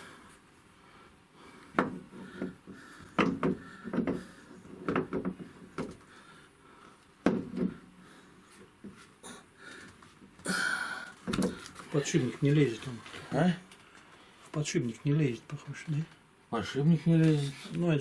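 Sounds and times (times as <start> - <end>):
wheel knocking and clunking: 1.8 - 6.0.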